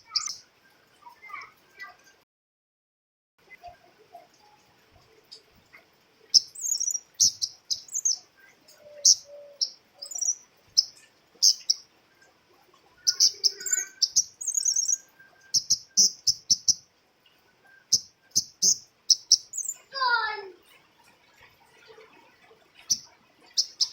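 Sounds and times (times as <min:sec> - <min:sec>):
bird warbling: 0:05.2 - 0:16.8, 0:17.4 - 0:23.9.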